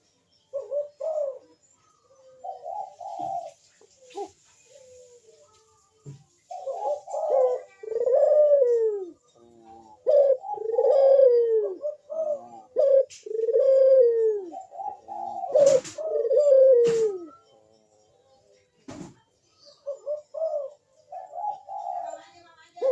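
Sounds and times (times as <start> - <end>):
dove cooing: 0.0 - 17.4, 19.8 - 22.9.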